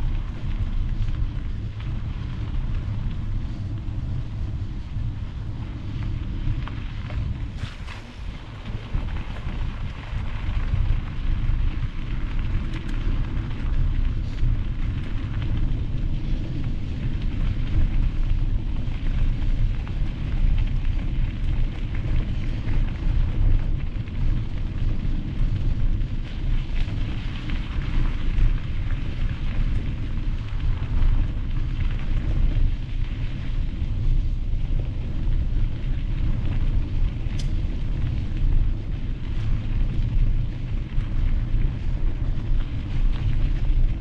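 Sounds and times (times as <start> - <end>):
wind buffeting microphone: 0.0 - 44.0
tyres rolling over gravel: 4.9 - 17.9.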